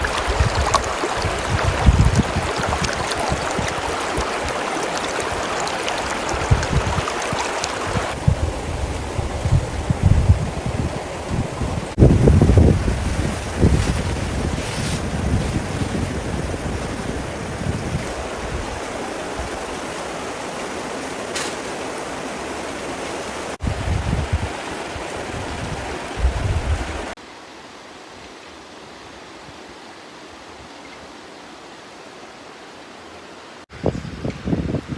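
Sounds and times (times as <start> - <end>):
wind buffeting microphone: 0.0 - 19.8, 23.6 - 27.2, 33.7 - 34.9
water rushing with sharp ticks: 0.0 - 33.7.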